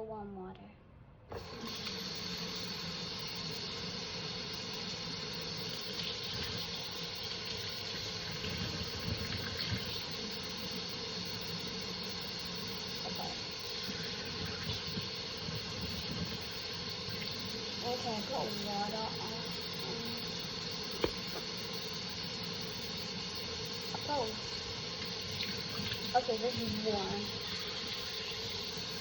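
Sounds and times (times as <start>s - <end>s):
tap running into a sink: 21.0s - 21.6s.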